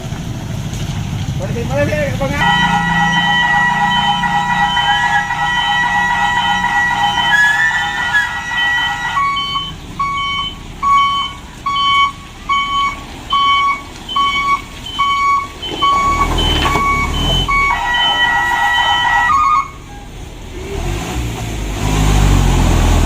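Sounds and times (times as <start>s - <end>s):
truck reversing alarm beeping: 2.4s - 20.2s.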